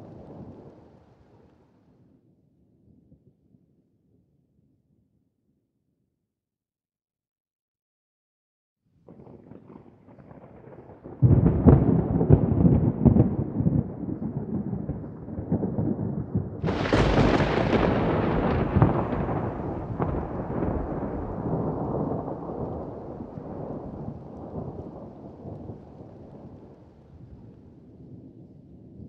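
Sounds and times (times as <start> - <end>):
thunder rumbling and cracking: 0.0 - 1.4, 9.1 - 29.0.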